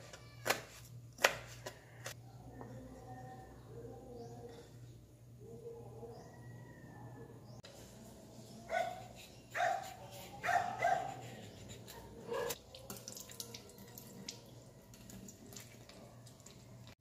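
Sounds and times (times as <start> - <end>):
dogs barking: 8.7 - 12.6.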